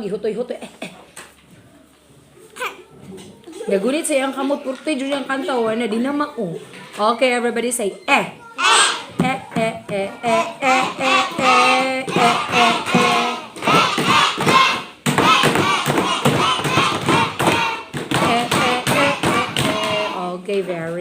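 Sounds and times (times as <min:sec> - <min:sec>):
children singing in unison: 0:08.6 - 0:09.4, 0:10.2 - 0:20.2
steady beat of thumps: 0:09.1 - 0:20.2.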